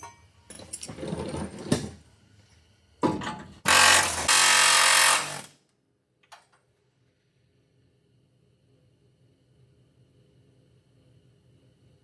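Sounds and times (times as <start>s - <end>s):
power tool running: 3.7s - 5.5s.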